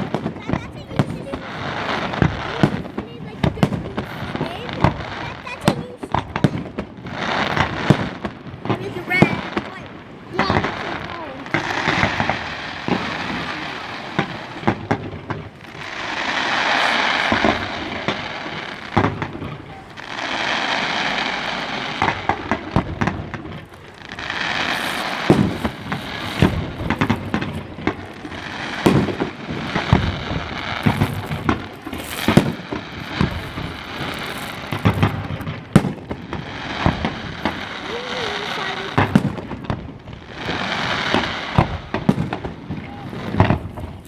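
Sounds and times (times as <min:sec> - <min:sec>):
fireworks bangs: 0:00.0 - 0:44.0
dense rushing noise: 0:11.2 - 0:38.9.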